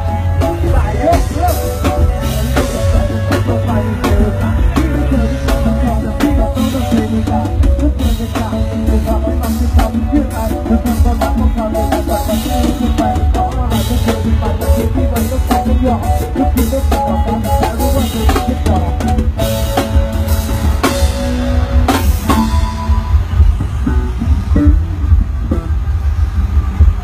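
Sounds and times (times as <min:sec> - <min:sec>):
booming bass: 0:00.0 - 0:27.0.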